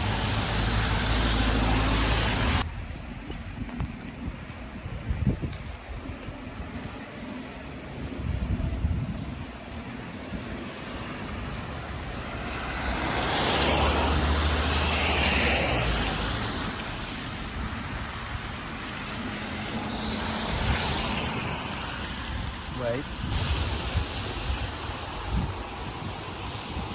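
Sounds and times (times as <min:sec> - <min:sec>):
vehicle passing by: 0:00.0 - 0:02.8, 0:06.4 - 0:26.9.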